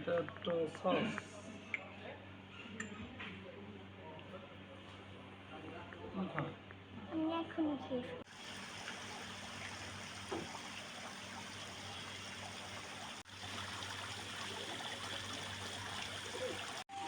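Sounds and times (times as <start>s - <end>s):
trickling running water: 8.3s - 16.9s.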